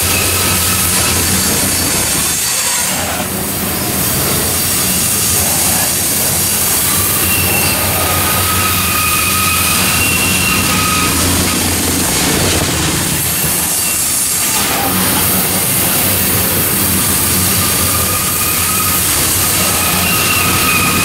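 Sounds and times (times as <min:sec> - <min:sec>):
high wheel squeal: 0:00.0 - 0:21.0
steel wheels rumbling on rails: 0:00.0 - 0:21.0.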